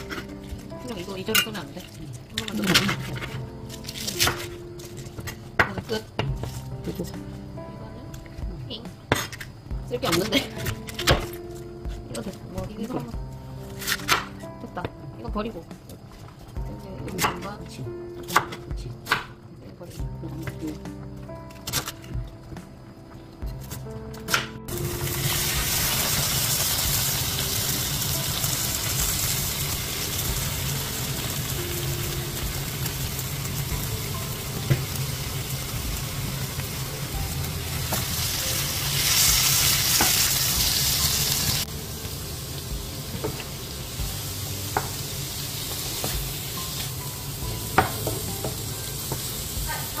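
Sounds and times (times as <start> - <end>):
food sizzling in a frying pan: 24.7 - 50.0.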